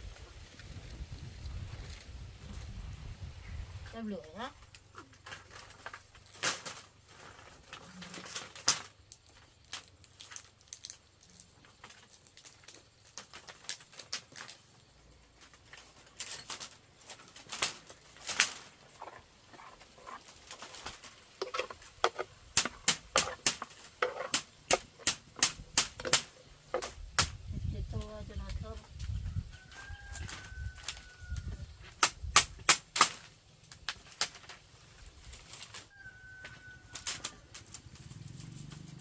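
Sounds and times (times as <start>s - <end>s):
wood fire crackling and popping: 4.6s - 27.4s, 31.8s - 35.9s, 37.0s - 39.0s.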